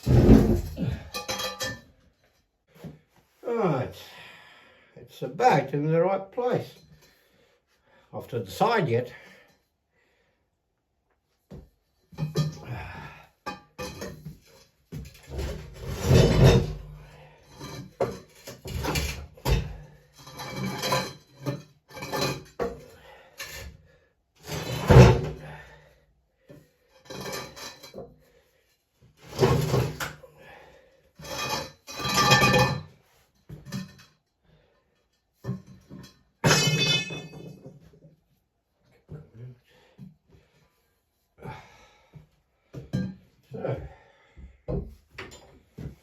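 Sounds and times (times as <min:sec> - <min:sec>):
heavy objects scraping and knocking: 0:00.0 - 0:01.3, 0:15.0 - 0:17.0, 0:24.4 - 0:25.4.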